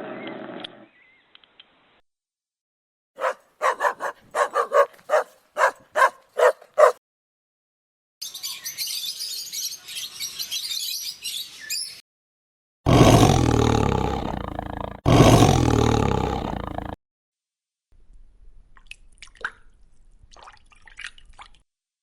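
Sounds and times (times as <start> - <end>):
large animal deep call: 12.9 - 17.0.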